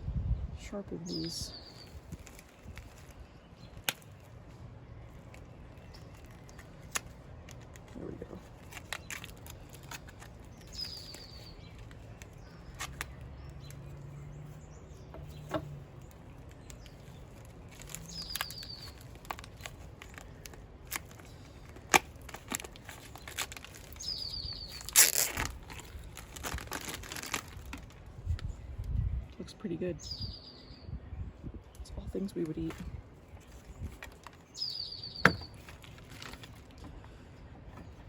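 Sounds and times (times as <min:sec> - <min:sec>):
songbird chirping: 0:00.2 - 0:21.8, 0:22.6 - 0:38.0
packaging rustling: 0:01.7 - 0:14.0, 0:15.3 - 0:28.4, 0:32.6 - 0:34.6, 0:35.3 - 0:36.9.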